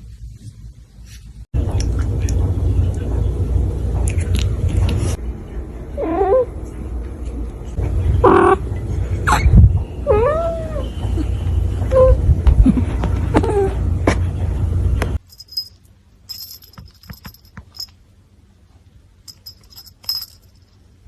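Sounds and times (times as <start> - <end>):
steady low rumble: 1.6 - 17.9.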